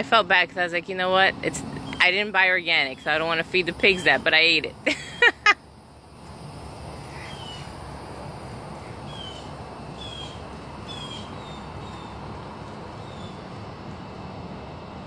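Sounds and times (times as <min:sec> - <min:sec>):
outdoor background noise: 0:00.0 - 0:15.0
bird chirping: 0:07.1 - 0:07.7, 0:08.8 - 0:12.2, 0:13.0 - 0:13.4.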